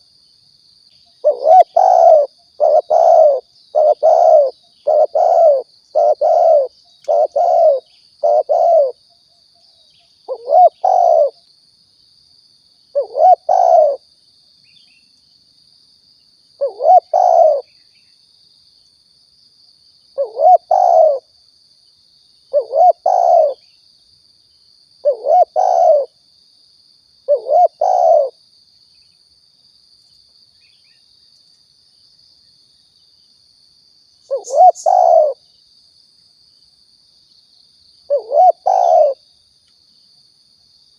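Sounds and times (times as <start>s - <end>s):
dove cooing: 1.2s - 9.0s, 10.3s - 11.4s, 13.0s - 14.0s, 16.6s - 17.7s, 20.2s - 21.3s, 22.5s - 23.6s, 25.0s - 26.2s, 27.3s - 28.4s, 34.3s - 35.4s, 38.1s - 39.2s.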